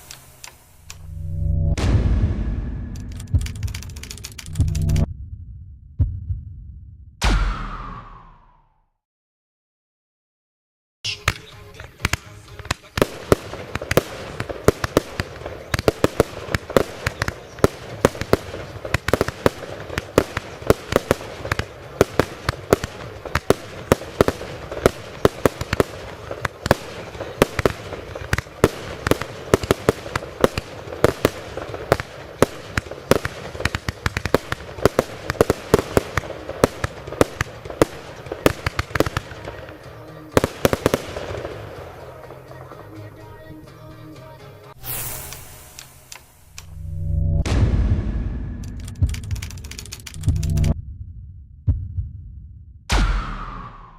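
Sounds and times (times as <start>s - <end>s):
firework bangs: 0.0s - 1.1s, 1.8s - 5.1s, 11.2s - 42.7s, 44.8s - 46.7s.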